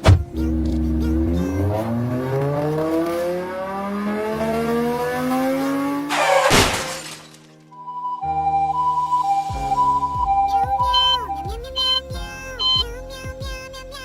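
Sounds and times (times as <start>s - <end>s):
car engine accelerating hard: 0.0s - 6.4s
loud crash: 6.1s - 7.5s.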